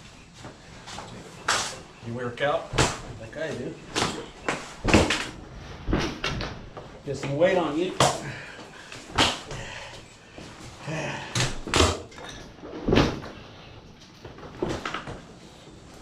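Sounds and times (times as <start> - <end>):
furniture knocking and banging: 3.9 - 6.9, 11.4 - 13.4.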